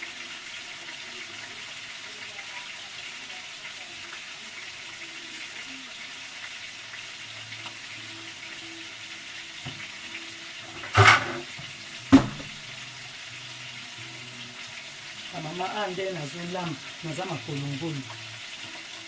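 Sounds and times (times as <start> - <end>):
sharp kitchen clatter: 10.7 - 12.5.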